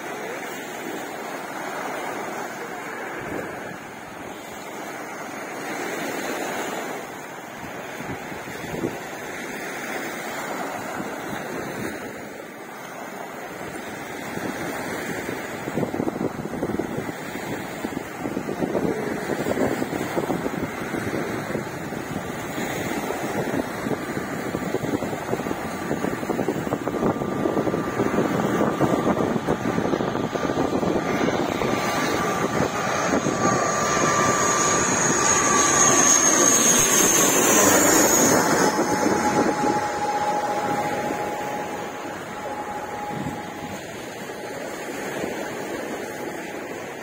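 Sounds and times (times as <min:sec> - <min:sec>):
surf washing: 0:00.0 - 0:47.0
engine passing by: 0:19.1 - 0:46.3.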